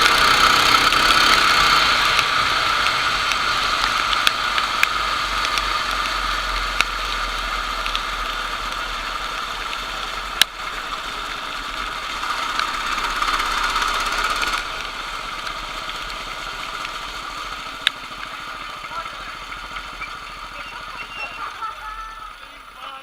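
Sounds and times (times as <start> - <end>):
kart engines running: 0.0 - 23.0
sharp clicks: 12.1 - 21.6.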